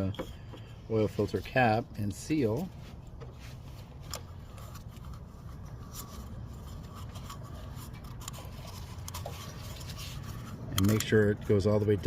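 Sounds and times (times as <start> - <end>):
steady low hum: 0.0 - 12.0
rubber ring rubbing: 2.5 - 11.8.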